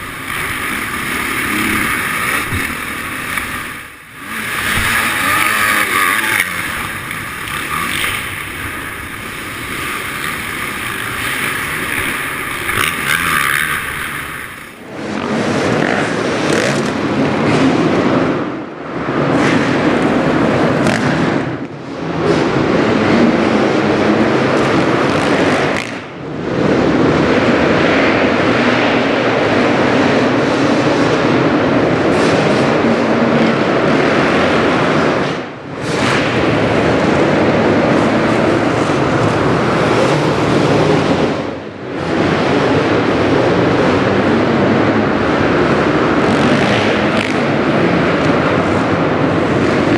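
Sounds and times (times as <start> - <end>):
motocross bike engine revving: 0.0 - 18.3, 19.2 - 21.4, 32.0 - 49.9.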